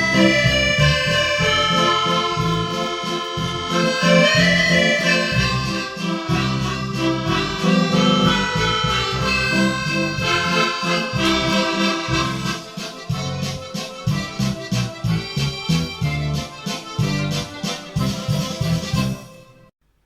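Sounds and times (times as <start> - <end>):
rhythmic bass: 0.0 - 19.2
accordion music: 0.0 - 19.7.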